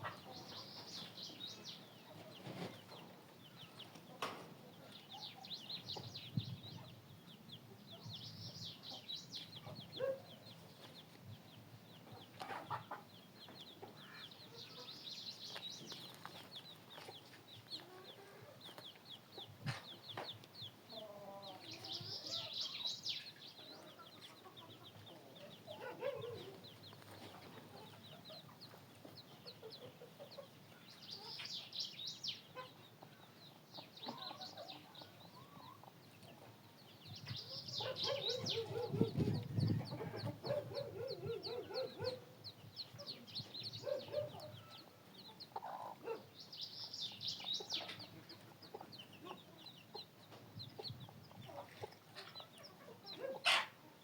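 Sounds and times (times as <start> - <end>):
chickens clucking: 0.0 - 31.7, 32.3 - 46.4, 47.0 - 54.0.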